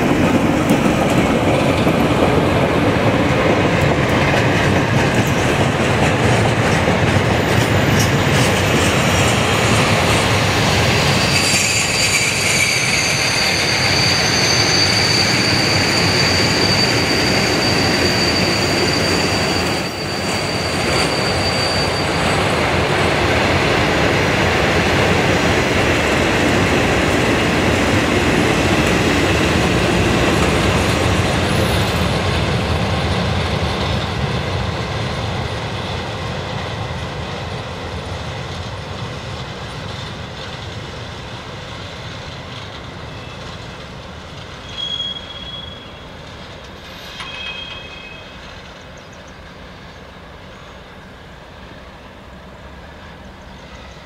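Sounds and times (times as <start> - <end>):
high wheel squeal: 7.4 - 22.8, 43.0 - 43.6, 44.5 - 49.4.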